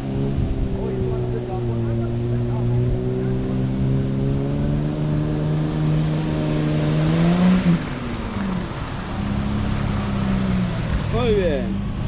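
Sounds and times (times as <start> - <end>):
engine revving under load: 0.0 - 12.0.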